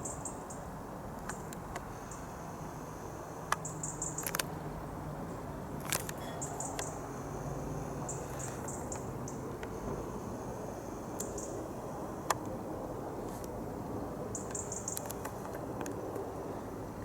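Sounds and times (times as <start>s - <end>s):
small birds chirping: 3.5s - 4.4s, 6.1s - 11.6s, 14.3s - 15.4s.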